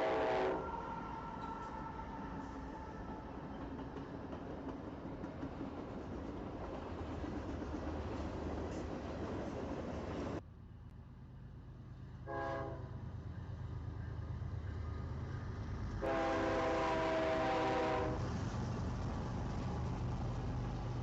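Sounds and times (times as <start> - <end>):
locomotive air horn: 0.0 - 2.1, 12.3 - 13.0, 16.0 - 18.2.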